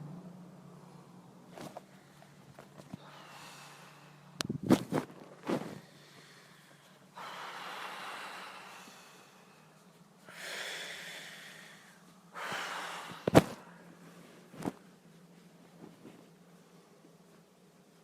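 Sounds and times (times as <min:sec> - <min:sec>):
deep forceful breathing: 0:03.0 - 0:04.4, 0:05.7 - 0:14.1.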